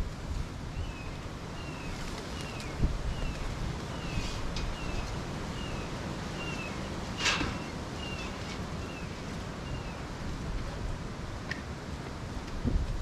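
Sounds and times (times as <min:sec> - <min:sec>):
wind rumbling on microphone: 0:00.0 - 0:13.0
bird chirping: 0:00.8 - 0:10.1.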